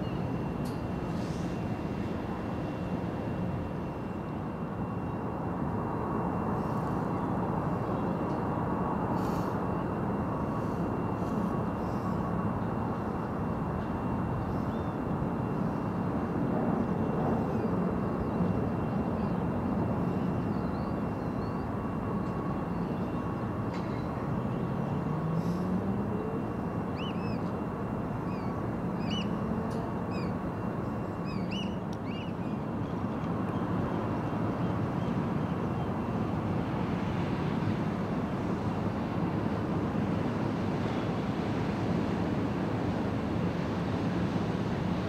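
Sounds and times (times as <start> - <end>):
wind: 0.0 - 45.0
high chirping bird calls: 28.3 - 29.4, 31.2 - 32.6.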